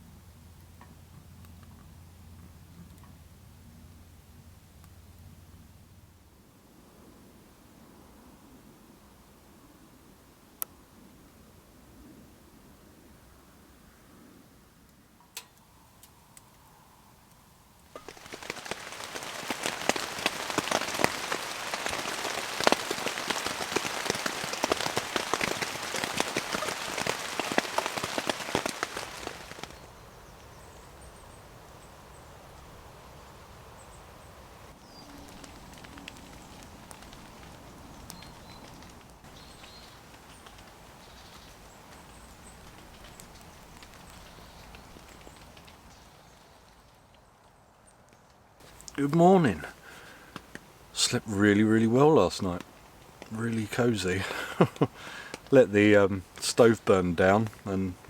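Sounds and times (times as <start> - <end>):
light rain and drips: 0.0 - 6.3, 14.8 - 58.0
heavy rain on a tent: 17.9 - 30.7, 32.8 - 46.2, 48.6 - 58.0.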